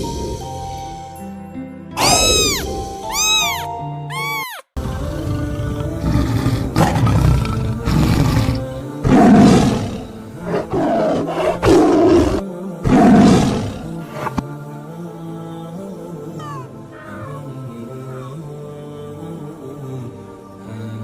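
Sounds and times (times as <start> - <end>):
background music: 0.0 - 21.0
large animal rough calls: 2.0 - 3.6, 5.2 - 14.4.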